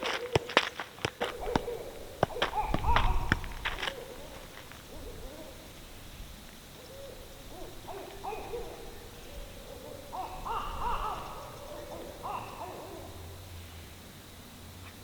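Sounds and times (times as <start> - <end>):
owls hooting: 1.2 - 13.8.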